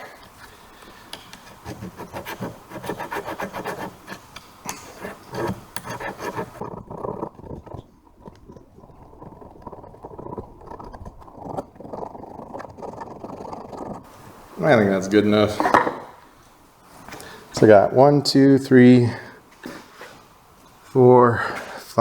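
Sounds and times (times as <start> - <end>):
scrubbing cable terminals: 0.0 - 15.7.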